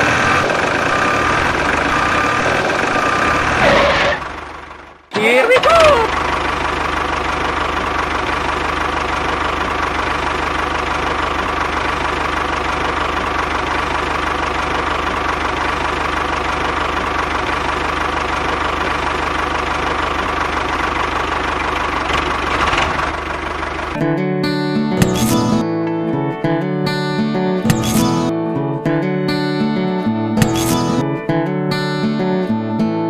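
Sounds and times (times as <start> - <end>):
tractor engine running: 0.0 - 33.0.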